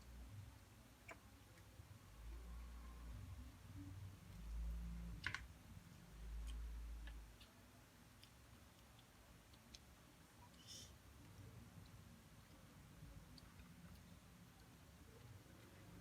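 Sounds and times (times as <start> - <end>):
eating clicks: 1.0 - 1.7, 5.9 - 16.0.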